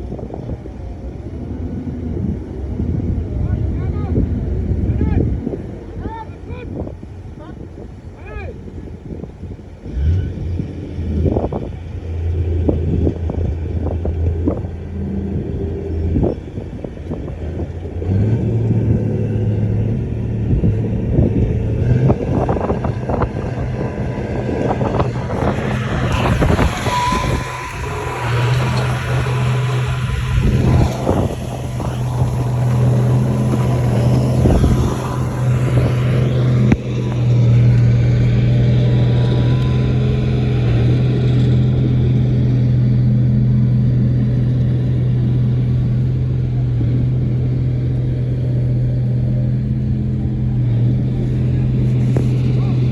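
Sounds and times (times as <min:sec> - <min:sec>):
bulldozer diesel engine: 0:17.4 - 0:52.9
rushing noise: 0:23.1 - 0:39.5.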